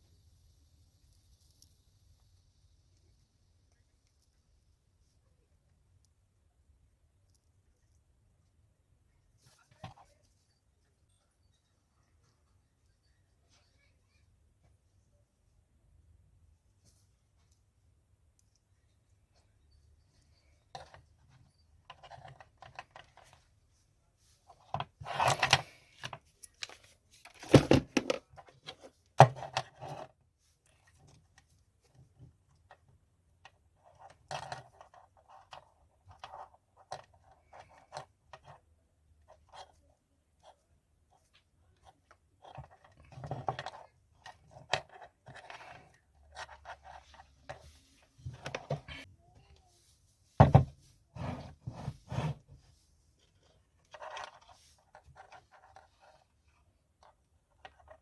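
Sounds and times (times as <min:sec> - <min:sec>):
tools scraping and knocking: 0:27.3 - 0:29.5.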